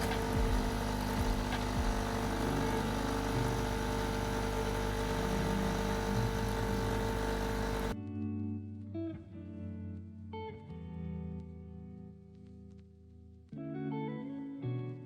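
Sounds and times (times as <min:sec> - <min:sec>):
steady mechanical hum: 0:00.0 - 0:08.0
guitar music: 0:00.0 - 0:15.0.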